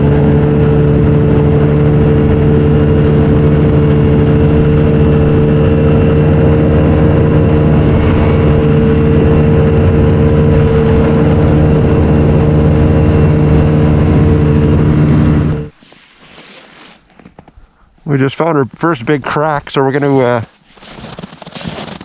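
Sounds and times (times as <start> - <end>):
small vehicle engine droning: 0.0 - 15.9.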